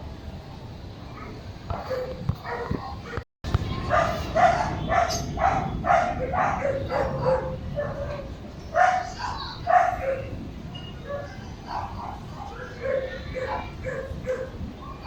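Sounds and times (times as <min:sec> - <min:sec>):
dog barking: 0:01.7 - 0:03.2, 0:03.8 - 0:10.3, 0:11.0 - 0:14.6.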